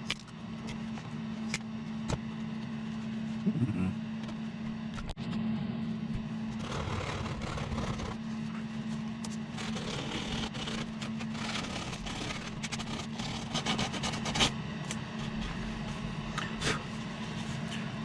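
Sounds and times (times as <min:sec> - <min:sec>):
steady low hum: 0:00.0 - 0:18.0
scraping and sanding wood: 0:09.5 - 0:14.5.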